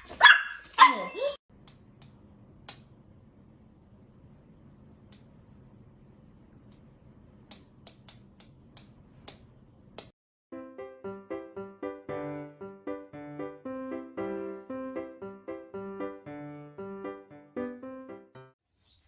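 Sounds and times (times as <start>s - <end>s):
piano music: 10.5s - 18.6s.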